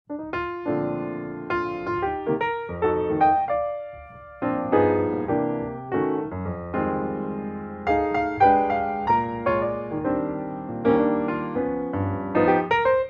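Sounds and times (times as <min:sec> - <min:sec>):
soft piano music: 0:00.1 - 0:13.0.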